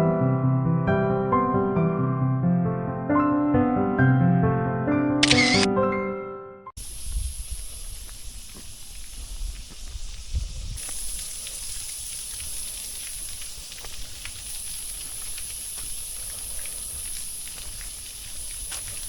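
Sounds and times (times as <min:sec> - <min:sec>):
insects buzzing drone: 0:06.8 - 0:12.0, 0:14.4 - 0:19.0
faint ticks: 0:10.8 - 0:19.0.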